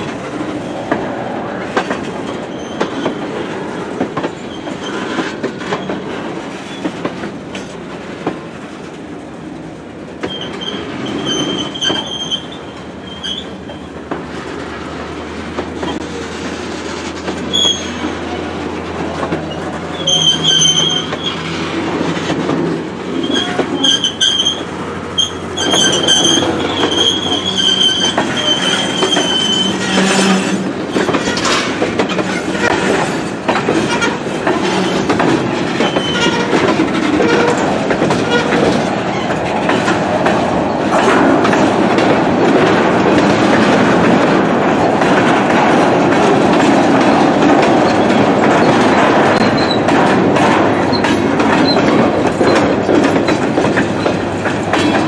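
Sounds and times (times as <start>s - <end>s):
train wheels rumbling on track: 0.0s - 55.0s
train wheels squealing: 2.4s - 3.3s, 10.2s - 14.0s, 17.5s - 18.1s, 19.5s - 21.5s, 23.2s - 31.5s, 35.8s - 36.5s, 49.4s - 49.8s.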